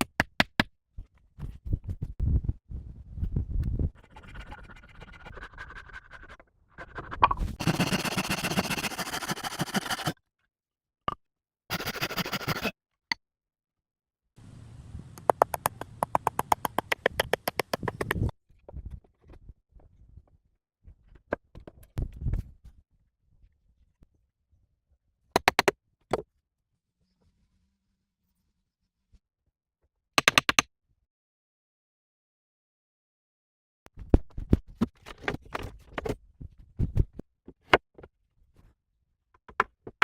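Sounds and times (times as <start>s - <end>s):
scraping and rasping: 4.0s - 10.2s.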